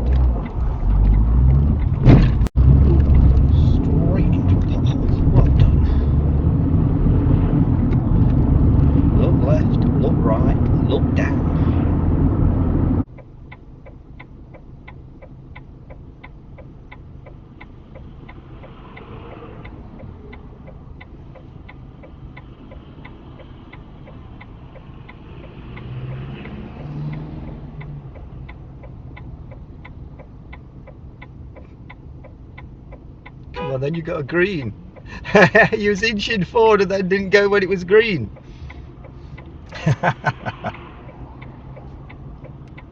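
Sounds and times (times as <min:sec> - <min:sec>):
loud rumble: 0:00.0 - 0:13.0
engine and road hum: 0:00.0 - 0:42.9
car indicator ticking: 0:13.0 - 0:42.9.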